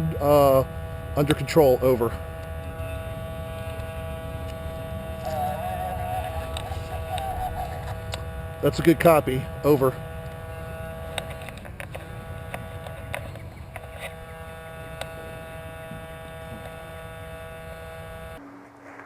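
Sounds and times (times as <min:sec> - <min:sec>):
electrical hum: 0:00.0 - 0:19.0
low rumble: 0:18.4 - 0:19.0.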